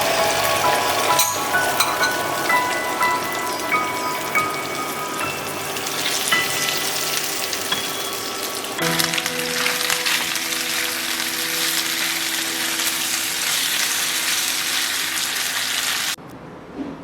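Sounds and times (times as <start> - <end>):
soft background music: 0.0 - 15.6
food sizzling in hot oil: 0.0 - 16.2.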